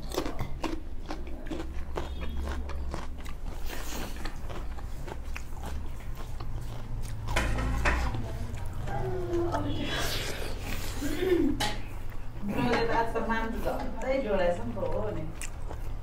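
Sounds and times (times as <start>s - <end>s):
people chewing food: 0.0s - 16.0s
lip and teeth smacks: 15.4s - 16.0s.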